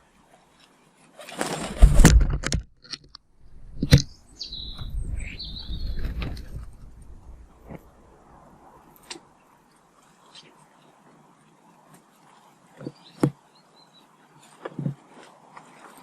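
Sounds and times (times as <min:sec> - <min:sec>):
short high bird chirps: 0:04.0 - 0:06.2
low rumble: 0:04.6 - 0:08.4.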